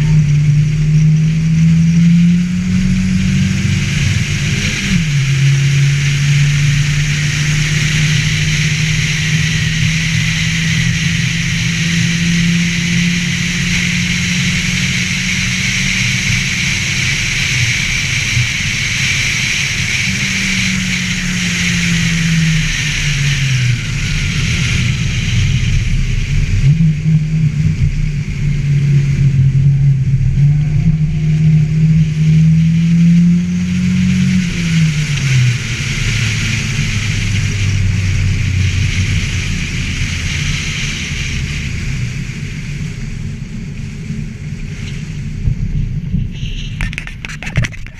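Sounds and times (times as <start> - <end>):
car engine running hard: 0.0 - 47.9.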